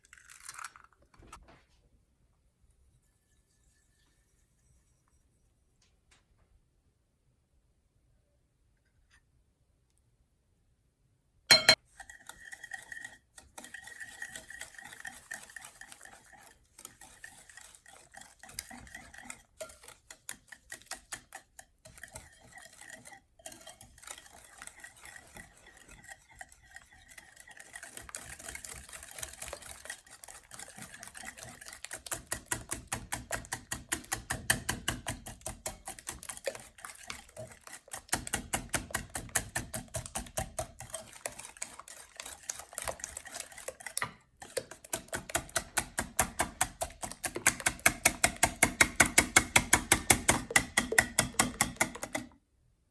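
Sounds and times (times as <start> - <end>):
whisk clicking against bowl: 11.5 - 52.4.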